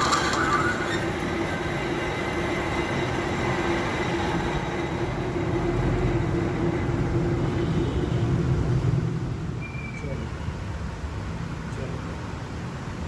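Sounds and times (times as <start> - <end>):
workshop machine rumbling: 0.0 - 7.6
machine whine: 0.0 - 10.0.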